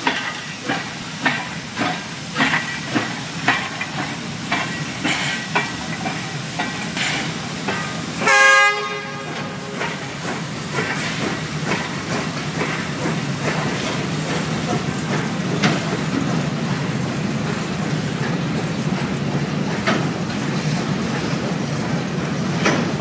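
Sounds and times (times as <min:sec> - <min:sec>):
train rumbling on track: 0:00.0 - 0:23.0.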